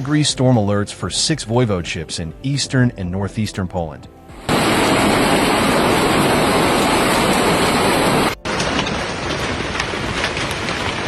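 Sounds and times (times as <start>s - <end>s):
heavy rain downpour: 4.5s - 11.0s.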